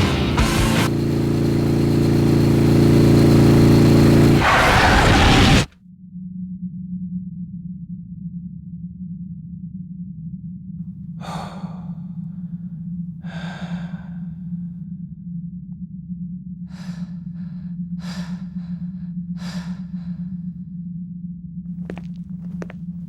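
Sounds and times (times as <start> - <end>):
person breathing heavily: 11.2 - 12.4, 13.2 - 14.4, 16.7 - 20.5.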